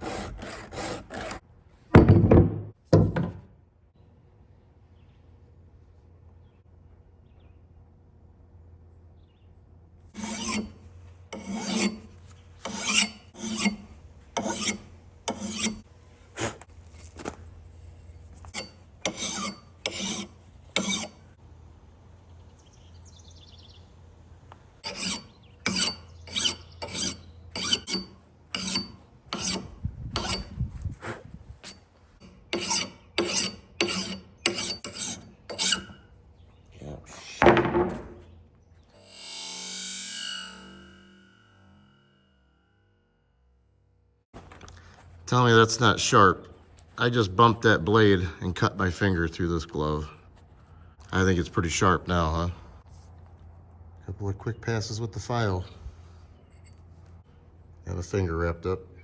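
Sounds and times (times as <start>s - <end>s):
file rasping on chainsaw chain: 10.2s - 15.9s, 18.5s - 21.2s, 24.8s - 30.6s, 31.6s - 36.0s.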